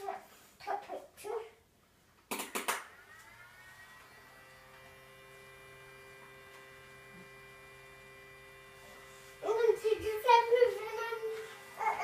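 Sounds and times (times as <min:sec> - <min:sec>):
faint electric motor hum: 0:03.2 - 0:12.0.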